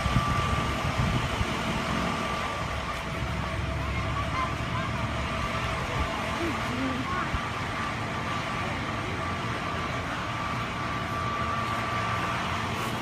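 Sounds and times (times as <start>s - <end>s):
faint steady whine: 0.0s - 13.0s
vehicle engine low rumble: 0.0s - 13.0s.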